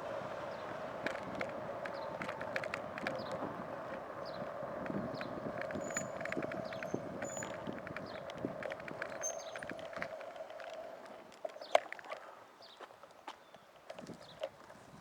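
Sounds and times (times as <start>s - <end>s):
bicycle hum: 0.0s - 12.8s
small clicks and rattles: 1.0s - 12.4s.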